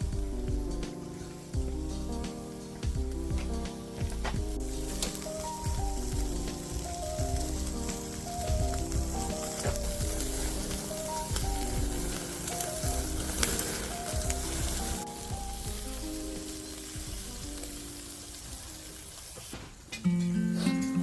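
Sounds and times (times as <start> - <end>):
background music: 0.0 - 21.0
food sizzling on a grill: 0.1 - 19.9
strummed guitar tune: 19.8 - 21.0.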